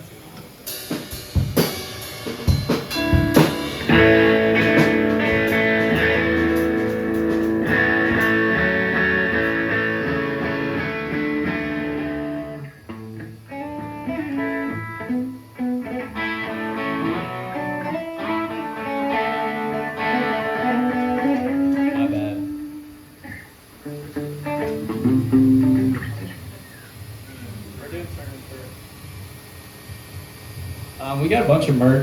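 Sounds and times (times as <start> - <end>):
guitar chords ringing: 1.2 - 27.4
guitar notes picked: 2.9 - 27.6.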